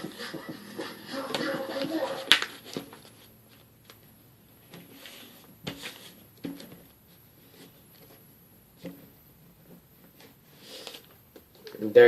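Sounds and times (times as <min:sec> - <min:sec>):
paper rustling and crinkling: 0:01.3 - 0:04.1.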